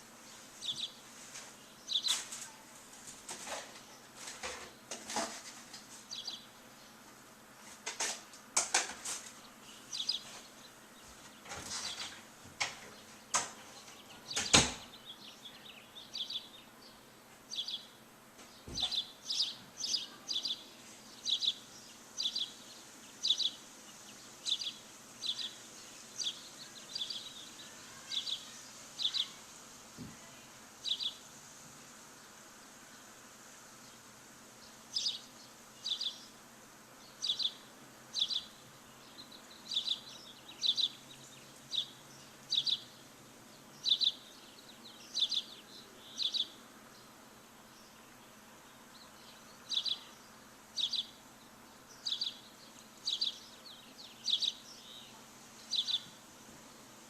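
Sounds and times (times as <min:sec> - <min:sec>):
faint steady hiss: 0:00.0 - 0:57.0
bird chirping: 0:00.3 - 0:01.0, 0:06.0 - 0:07.0, 0:09.4 - 0:12.2, 0:12.8 - 0:29.4, 0:30.8 - 0:31.2, 0:34.6 - 0:36.4, 0:37.0 - 0:56.2.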